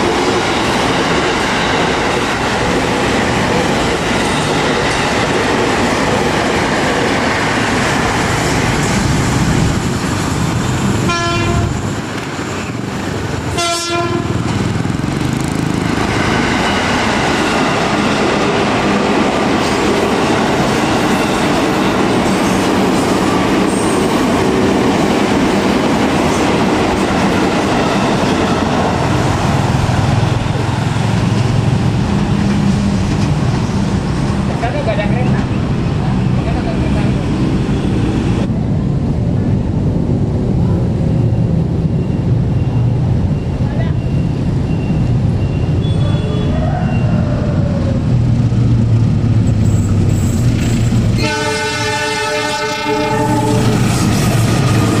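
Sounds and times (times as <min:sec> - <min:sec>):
train wheels on rails: 0:00.0 - 0:55.0
train horn blasts: 0:11.0 - 0:11.9, 0:13.5 - 0:14.5, 0:51.2 - 0:53.8.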